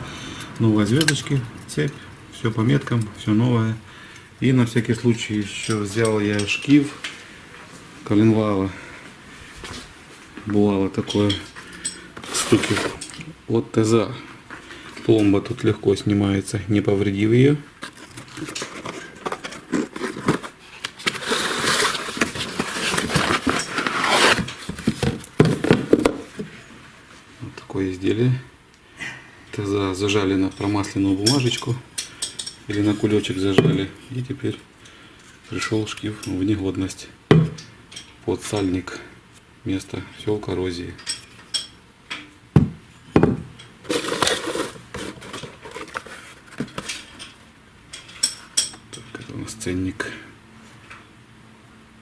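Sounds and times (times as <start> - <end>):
scrape or rustle: 12.2 - 13.2, 17.8 - 25.2, 43.8 - 47.4
wrapping crinkling: 17.8 - 26.0, 43.8 - 47.2
hard parts knocking on workbench: 24.7 - 26.5, 33.6 - 33.9, 37.3 - 37.7, 42.6 - 44.1.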